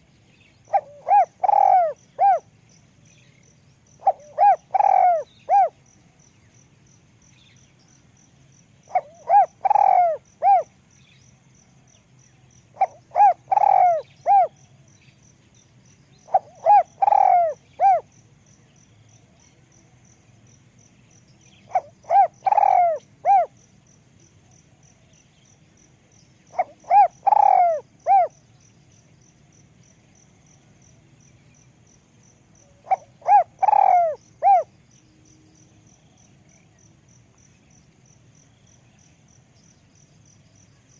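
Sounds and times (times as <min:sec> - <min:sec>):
cricket trilling: 0:00.0 - 0:40.9
dove cooing: 0:00.7 - 0:02.5, 0:04.0 - 0:05.8, 0:08.9 - 0:10.7, 0:12.7 - 0:14.6, 0:16.2 - 0:18.1, 0:21.7 - 0:23.5, 0:26.5 - 0:28.4, 0:32.6 - 0:34.7.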